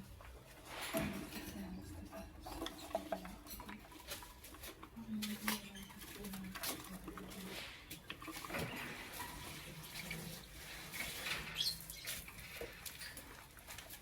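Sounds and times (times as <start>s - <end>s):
birds clicking and tapping: 0.0s - 14.0s
faint bird squeaks: 11.5s - 12.2s.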